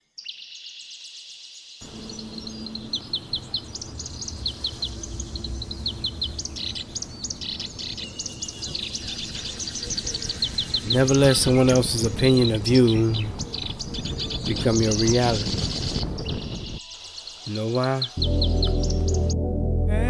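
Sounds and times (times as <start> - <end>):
songbirds chirping: 0.0 - 19.3
low steady hum: 18.2 - 20.0.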